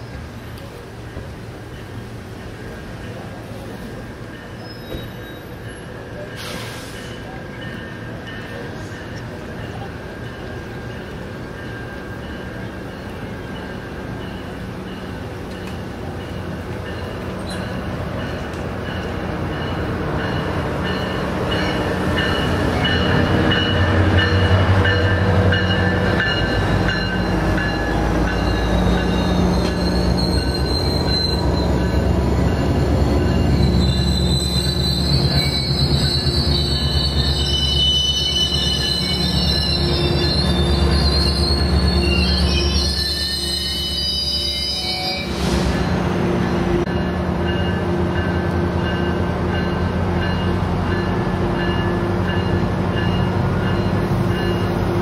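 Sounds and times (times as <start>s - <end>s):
train rumbling past: 0.0s - 55.0s
high-pitched wheel squeal: 28.9s - 32.4s, 33.4s - 45.4s.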